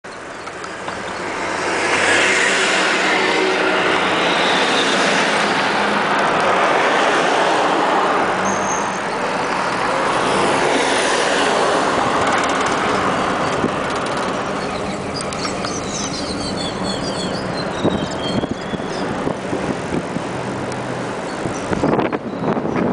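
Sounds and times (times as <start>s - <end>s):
road traffic passing: 0.1s - 22.9s.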